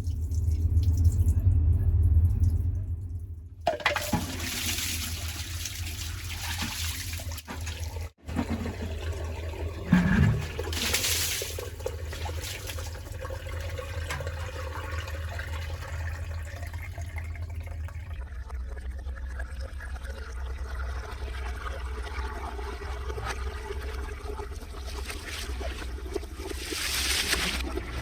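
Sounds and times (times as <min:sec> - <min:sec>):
low rumble: 0:00.0 - 0:03.7
floodwater rushing: 0:24.8 - 0:28.0.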